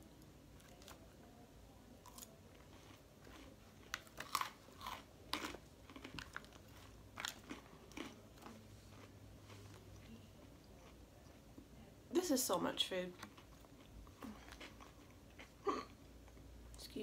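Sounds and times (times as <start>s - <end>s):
crisp chewing of salad: 2.0s - 11.7s, 13.1s - 16.8s.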